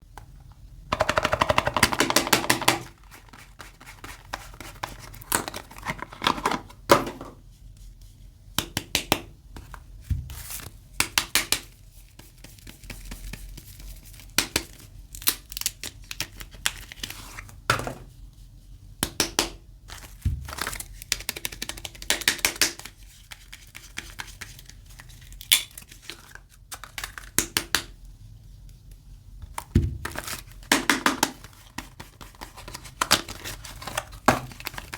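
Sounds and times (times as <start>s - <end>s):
wrapper crinkling: 31.3s - 34.9s
packaging tearing: 32.3s - 34.9s.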